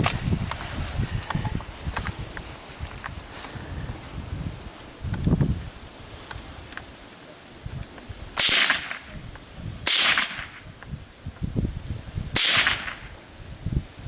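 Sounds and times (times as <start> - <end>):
rifle shots: 8.4 - 9.1, 9.9 - 10.6, 12.4 - 13.1.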